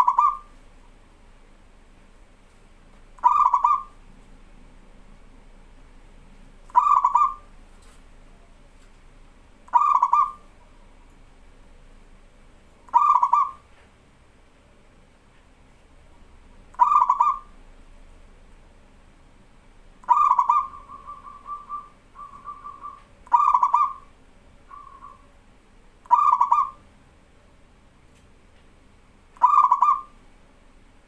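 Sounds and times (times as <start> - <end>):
dove cooing: 0.0 - 0.6, 3.2 - 4.0, 6.7 - 7.6, 9.7 - 10.8, 12.9 - 13.7, 16.7 - 17.6, 20.0 - 25.4, 26.0 - 26.8, 29.4 - 30.2.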